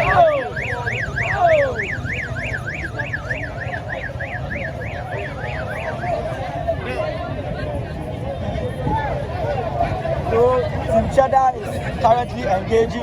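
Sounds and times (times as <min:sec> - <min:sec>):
electronic siren yelping: 0:00.0 - 0:06.7
crowd noise: 0:00.0 - 0:13.0
low rumble of engines: 0:00.0 - 0:13.0.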